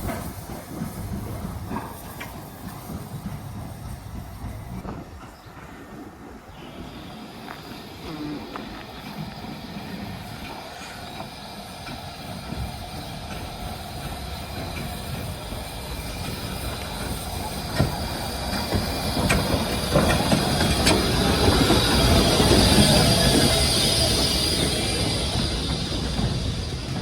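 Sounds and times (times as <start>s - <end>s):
steam hiss: 0.0s - 5.0s, 5.6s - 27.0s
steam train running on rails: 0.0s - 27.0s.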